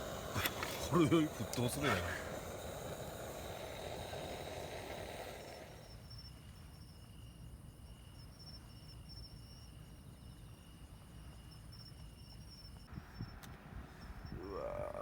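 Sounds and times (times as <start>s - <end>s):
hissing noise: 0.0s - 6.0s
insects trilling: 0.0s - 15.0s.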